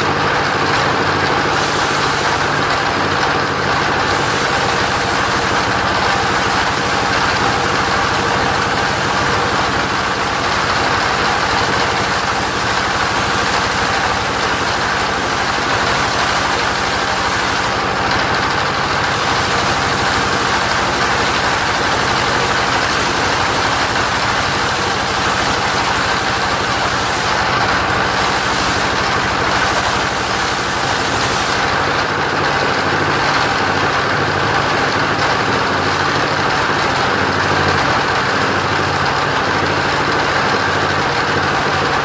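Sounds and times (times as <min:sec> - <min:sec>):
sawmill engine running: 0:00.0 - 0:42.0.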